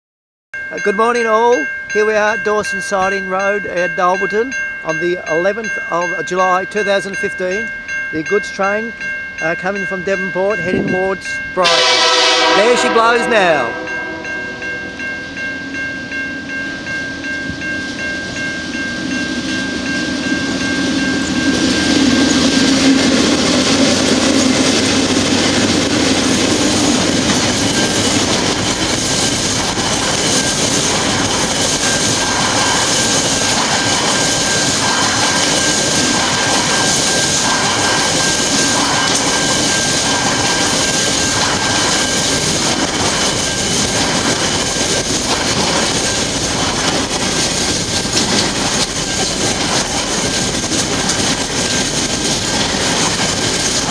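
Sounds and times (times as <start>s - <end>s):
diesel locomotive engines: 0.6s - 53.9s
freight wagons rumbling: 0.6s - 53.9s
wheels clattering: 17.5s - 53.9s.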